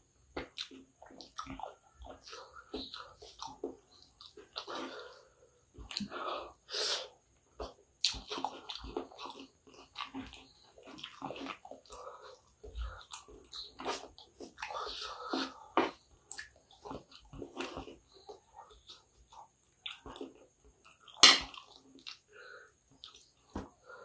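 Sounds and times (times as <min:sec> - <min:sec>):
wet chewing and lip-smacking: 0:00.3 - 0:04.8, 0:07.5 - 0:22.3, 0:22.9 - 0:23.8.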